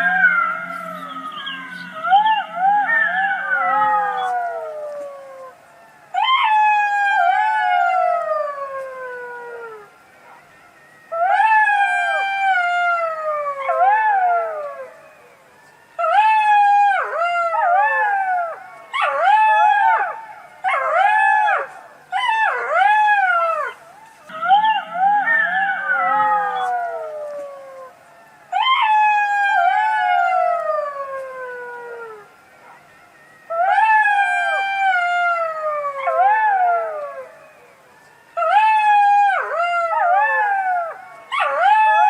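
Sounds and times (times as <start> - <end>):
fox yelping and whining: 0.0 - 5.5, 16.0 - 27.9.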